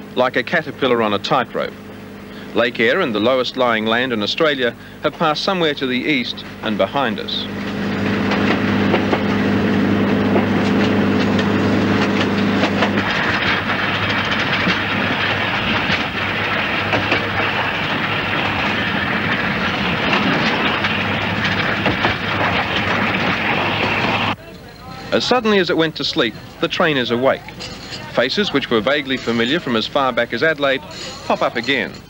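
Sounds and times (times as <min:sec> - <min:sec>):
steady low hum: 0:00.0 - 0:32.0
train wheels rumbling on track: 0:04.7 - 0:24.4
rail joint clicks: 0:07.2 - 0:25.1.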